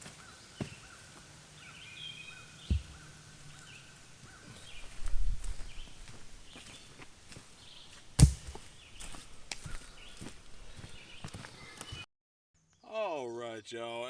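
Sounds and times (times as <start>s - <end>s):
birds calling: 0.0s - 12.1s
bird chirping: 0.2s - 8.1s, 8.7s - 12.0s
dull thumps: 2.6s - 3.6s, 8.2s - 8.6s.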